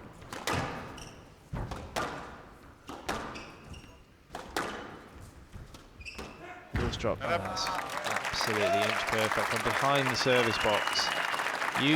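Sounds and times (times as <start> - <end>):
squash ball hitting rackets and walls: 0.1 - 6.9
shoe squeaks: 0.9 - 1.4, 3.3 - 4.2, 6.0 - 6.5.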